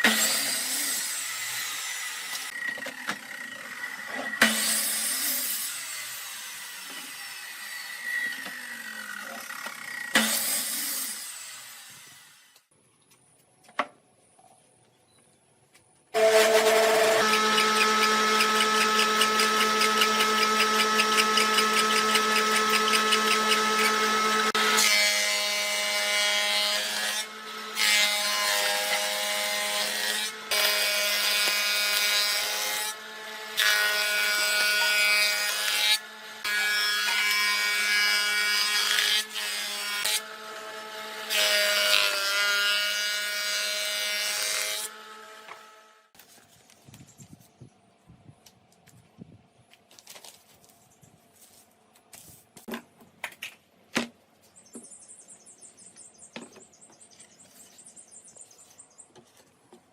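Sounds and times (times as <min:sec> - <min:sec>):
power tool running on wood: 0:16.2 - 0:39.3.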